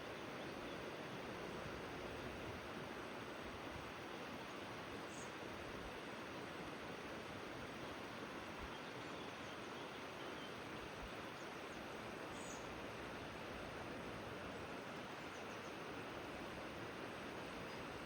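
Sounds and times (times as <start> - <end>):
river water rushing: 9.6 - 18.0.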